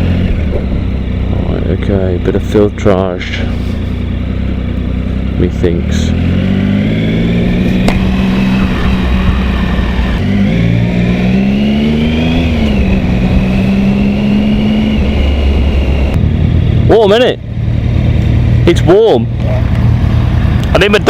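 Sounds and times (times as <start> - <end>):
motorcycle engine revving: 0.0 - 21.0
wind noise: 0.1 - 1.1, 7.0 - 16.8.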